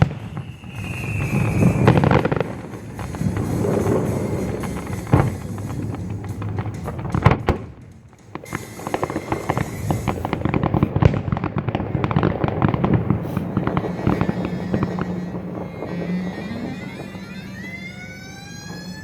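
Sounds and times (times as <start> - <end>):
fireworks crackling and popping: 0.0 - 19.0.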